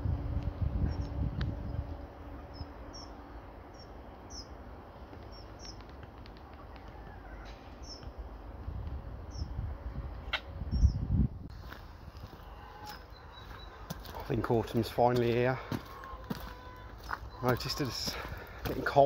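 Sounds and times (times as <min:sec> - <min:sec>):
microphone rumble: 0:00.0 - 0:02.6
small bird chirping: 0:02.5 - 0:04.6, 0:05.2 - 0:05.9, 0:12.5 - 0:14.1.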